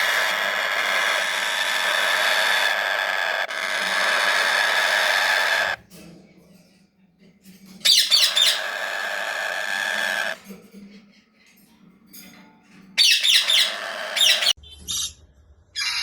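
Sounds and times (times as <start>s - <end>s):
parrots squawking: 0.0s - 5.8s, 7.8s - 10.4s, 13.0s - 14.6s, 15.8s - 16.0s.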